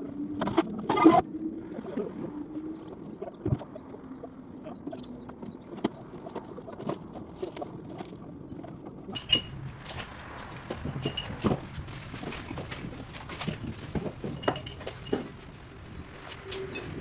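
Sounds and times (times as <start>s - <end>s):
demolition knocks and clicks: 9.2s - 17.0s.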